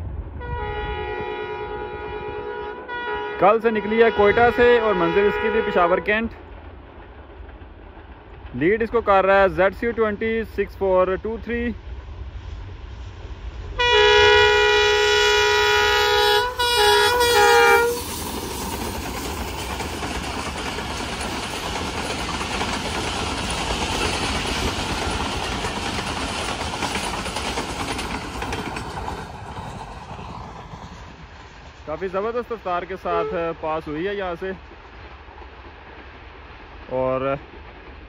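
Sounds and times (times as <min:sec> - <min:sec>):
train rumble and clatter: 0:00.0 - 0:38.0
locomotive horn: 0:00.4 - 0:06.2, 0:13.8 - 0:18.1, 0:33.0 - 0:33.6.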